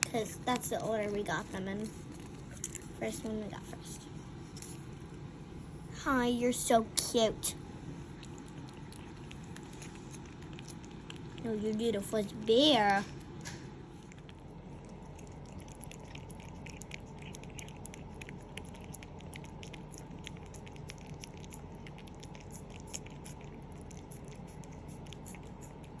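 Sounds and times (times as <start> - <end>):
cat licking wet clicks: 8.1 - 12.4, 13.2 - 26.0.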